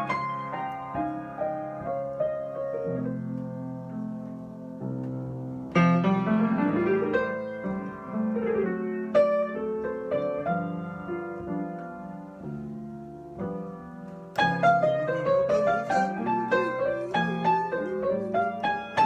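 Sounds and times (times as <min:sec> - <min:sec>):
solo piano: 0:00.0 - 0:19.0.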